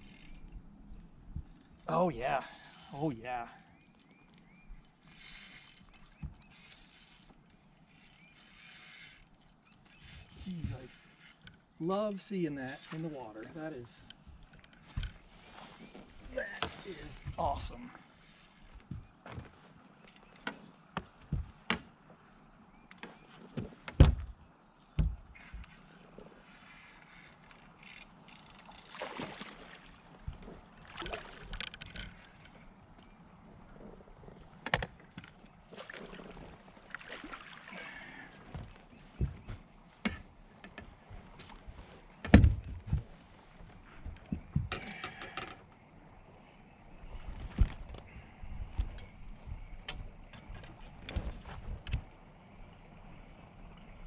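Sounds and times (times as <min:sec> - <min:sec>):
knocks and thumps on a boat: 0:20.4 - 0:22.1, 0:22.9 - 0:25.7, 0:38.4 - 0:43.2, 0:44.0 - 0:45.6.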